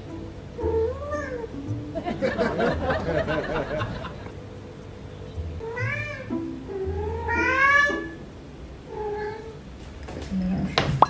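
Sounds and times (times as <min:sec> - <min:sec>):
cat meowing: 0:00.6 - 0:01.5, 0:05.6 - 0:08.2, 0:08.9 - 0:09.6.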